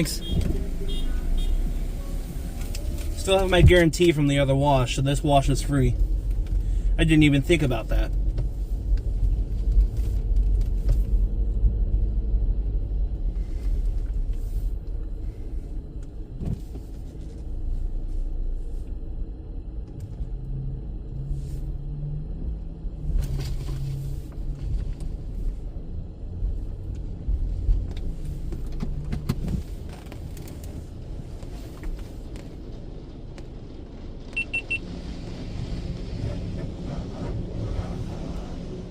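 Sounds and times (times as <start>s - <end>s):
low rumble inside car: 0.0s - 38.9s
car wash hisses: 34.9s - 38.9s.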